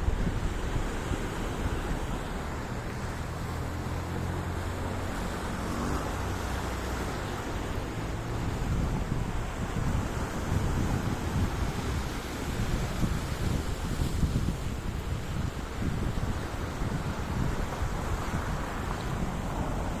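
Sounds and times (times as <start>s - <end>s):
sea waves washing: 0.0s - 20.0s
wind buffeting microphone: 0.0s - 20.0s.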